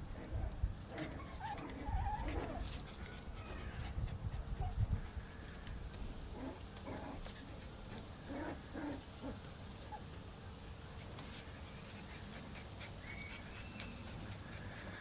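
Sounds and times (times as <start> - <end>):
puppies yelping and grunting: 0.1 - 5.0, 11.8 - 15.0
faint high squeaks: 13.0 - 14.4.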